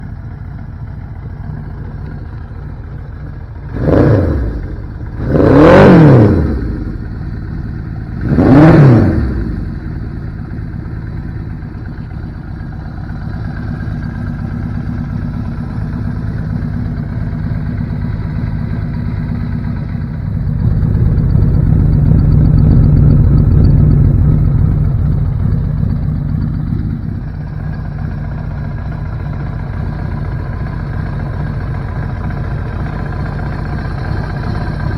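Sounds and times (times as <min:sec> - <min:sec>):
motorcycle engine idling: 0:00.0 - 0:34.9
engine revving blips: 0:03.7 - 0:07.0, 0:08.2 - 0:09.7.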